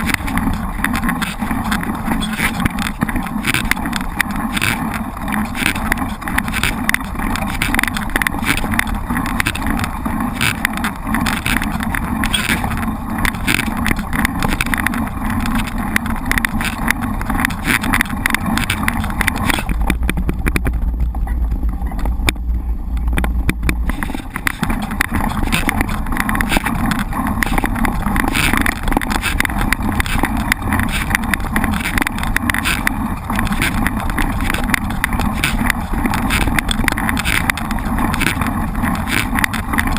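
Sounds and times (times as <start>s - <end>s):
bike rattling over rough ground: 0.0s - 39.9s.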